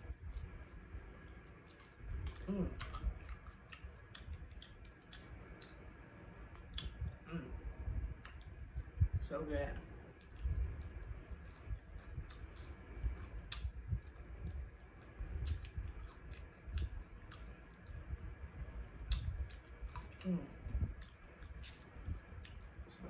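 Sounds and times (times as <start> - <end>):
person chewing: 0.0 - 7.4, 8.2 - 9.0, 10.1 - 23.0
wet mouth clicks and lip smacks: 1.3 - 5.8, 6.5 - 7.2, 8.2 - 8.6, 10.2 - 18.1, 19.0 - 20.2
person humming mm: 2.4 - 2.8.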